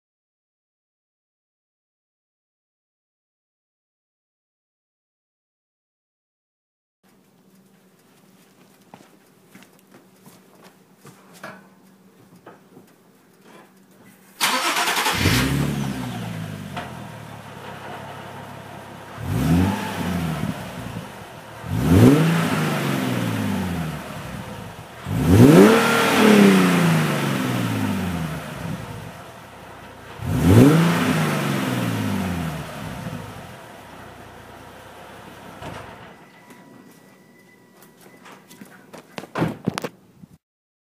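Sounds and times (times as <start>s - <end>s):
car engine idling and revving: 14.4s - 36.2s
car engine starting: 14.4s - 36.2s.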